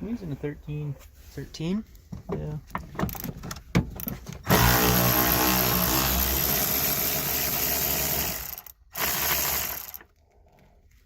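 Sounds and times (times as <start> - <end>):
power tool motor whirr: 4.5 - 10.0.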